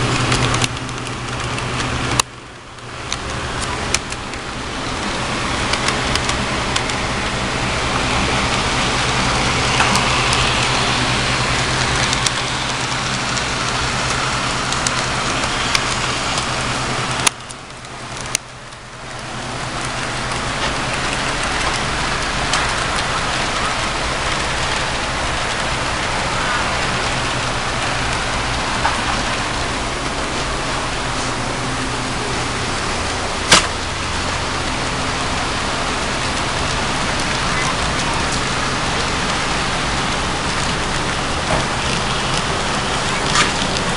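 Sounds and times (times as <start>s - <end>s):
model train running: 0.0s - 43.9s
sharp clicks: 0.1s - 2.4s, 3.1s - 4.4s, 5.7s - 7.0s, 17.2s - 18.8s.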